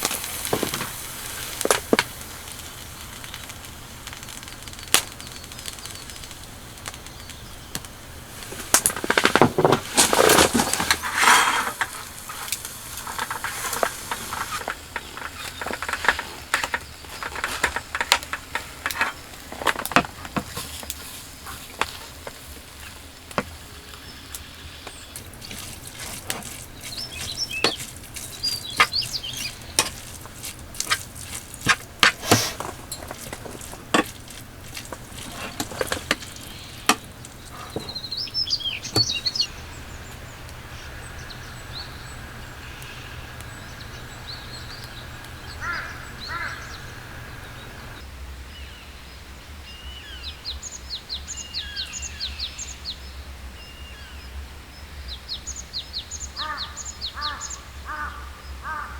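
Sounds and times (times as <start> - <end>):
sharp ticks and pops: 0.0 - 10.1, 11.8 - 47.1
soft hiss: 0.0 - 48.0
birds chirping: 0.0 - 48.9, 49.6 - 58.9.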